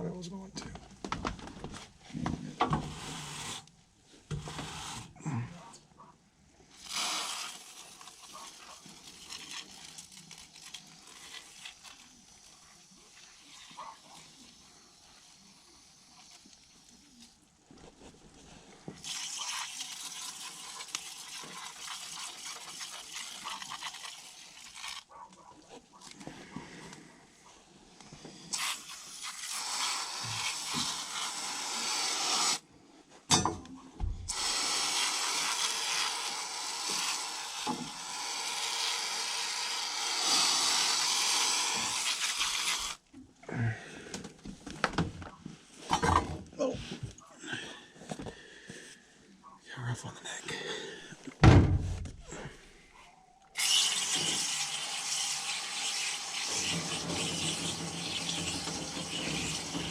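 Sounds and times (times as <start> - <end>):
water spray hissing: 6.8 - 17.3, 28.5 - 32.6, 34.3 - 43.0, 53.6 - 59.9.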